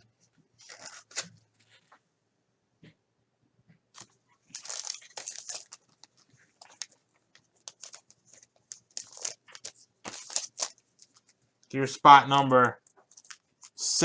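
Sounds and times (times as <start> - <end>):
pack wrapper crinkling and tearing: 0.6 - 1.4, 4.0 - 11.4, 12.8 - 14.0
cards rustling: 0.6 - 1.9, 4.0 - 11.8, 12.7 - 14.0.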